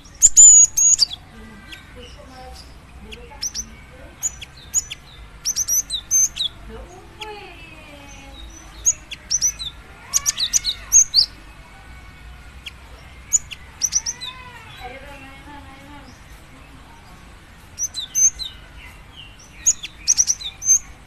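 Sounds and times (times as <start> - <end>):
bird chirping sharply: 0.0 - 11.5, 12.4 - 15.4, 17.7 - 21.0
gliding bird whistles: 0.2 - 1.1.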